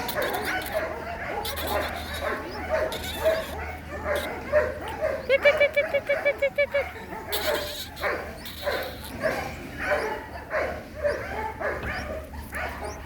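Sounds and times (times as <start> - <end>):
baby birds calling: 0.0 - 13.0.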